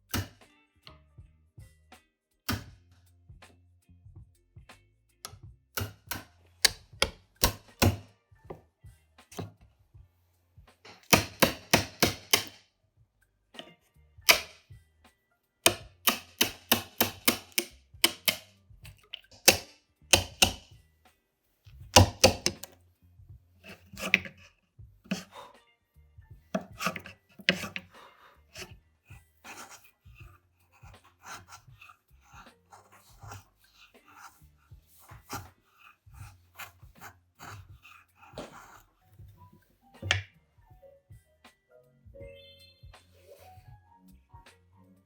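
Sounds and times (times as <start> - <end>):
tool tapping on wood: 5.3 - 8.6, 10.9 - 12.6, 13.6 - 14.6, 15.7 - 20.8, 21.9 - 22.8, 23.6 - 24.5, 26.5 - 27.9, 40.0 - 40.3.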